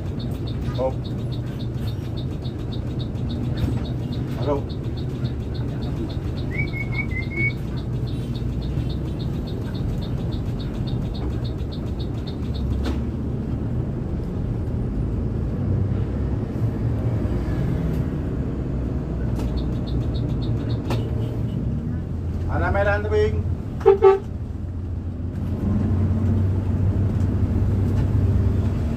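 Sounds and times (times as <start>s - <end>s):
faint fast ticking: 0.0s - 12.8s
bus engine and road rumble: 0.0s - 28.9s
short high chirp: 6.5s - 8.4s.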